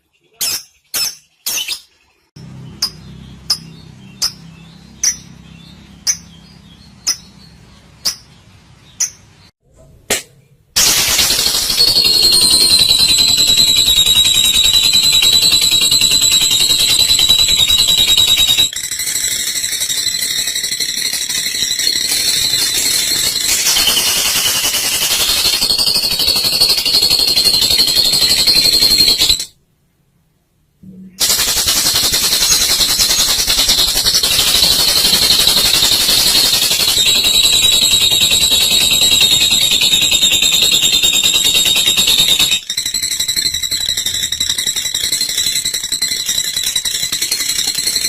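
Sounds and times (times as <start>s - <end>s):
bird chattering trill: 2.8s - 8.3s, 31.2s - 46.2s.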